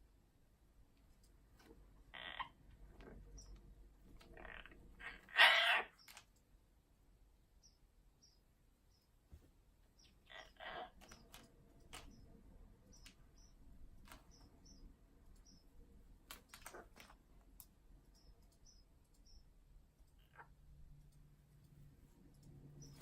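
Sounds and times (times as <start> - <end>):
parrot clicks and chirps: 4.2 - 6.5, 10.0 - 21.7
parrot rasping: 4.3 - 6.1, 10.3 - 11.2.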